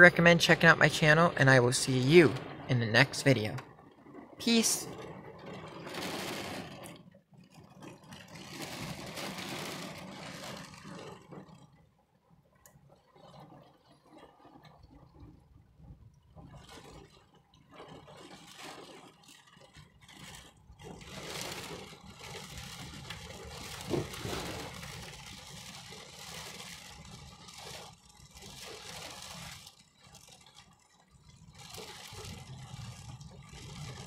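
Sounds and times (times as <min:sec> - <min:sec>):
heavy rain on car roof: 0:00.0 - 0:34.0.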